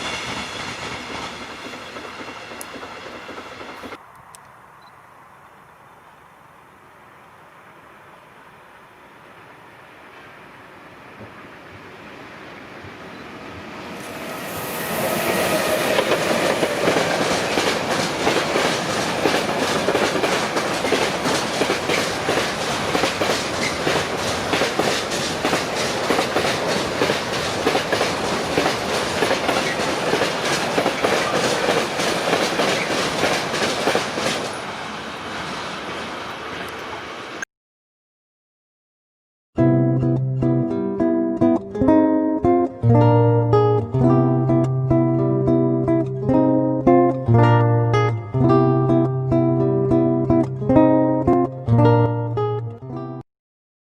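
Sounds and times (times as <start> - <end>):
train passing: 0.0 - 37.4
wheels clicking over rail joints: 15.8 - 34.6.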